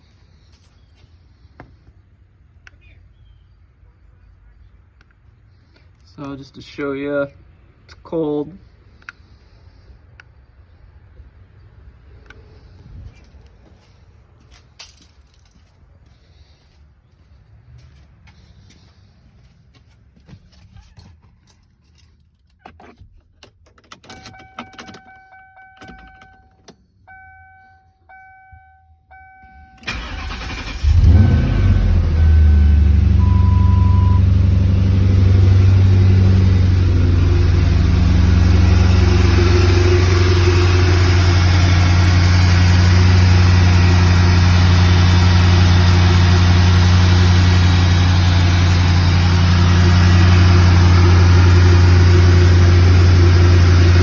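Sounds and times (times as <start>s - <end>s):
car engine idling: 29.5s - 54.0s.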